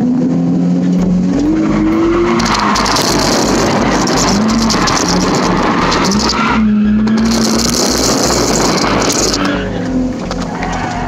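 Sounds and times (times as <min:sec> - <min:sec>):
car engine running hard: 0:00.0 - 0:11.0
rushing noise: 0:01.2 - 0:11.0.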